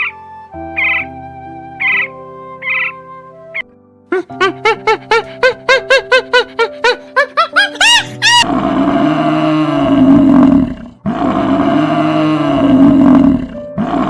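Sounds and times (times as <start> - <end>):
tiger roaring: 8.3 - 14.0.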